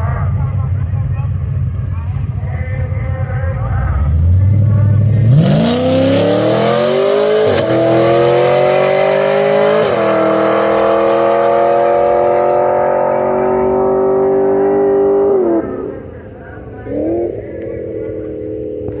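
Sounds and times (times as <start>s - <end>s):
motorcycle engine revving: 4.1s - 19.0s.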